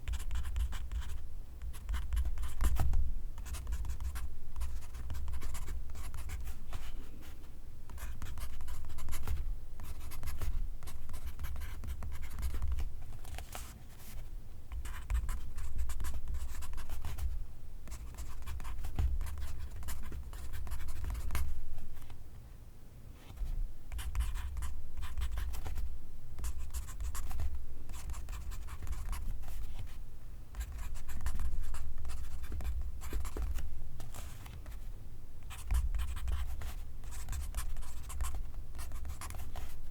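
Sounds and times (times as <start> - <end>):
pencil writing on paper: 0.1 - 2.8, 3.4 - 6.8, 17.9 - 21.5, 23.9 - 25.8, 26.4 - 29.9, 35.5 - 39.8.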